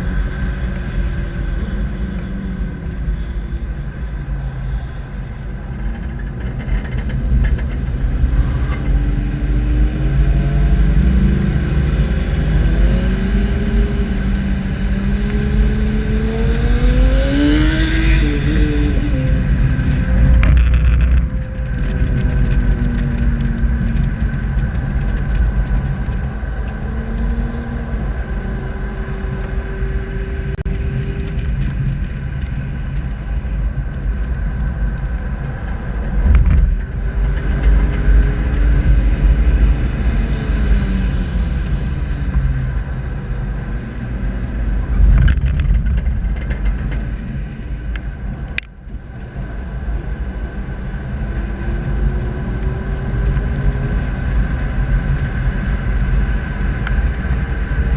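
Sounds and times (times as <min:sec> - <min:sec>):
wind rumble on microphone: 0:00.0 - 0:57.9.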